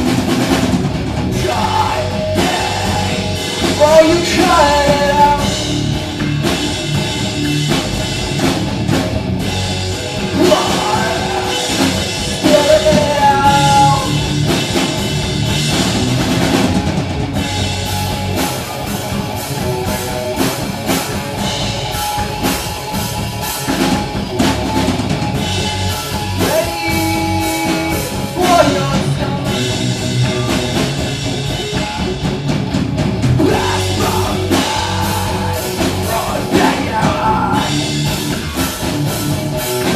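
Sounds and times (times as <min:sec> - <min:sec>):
live rock band playing: 0:00.0 - 0:39.9
person singing: 0:01.4 - 0:05.6, 0:10.3 - 0:14.2, 0:26.4 - 0:29.7, 0:33.4 - 0:37.9.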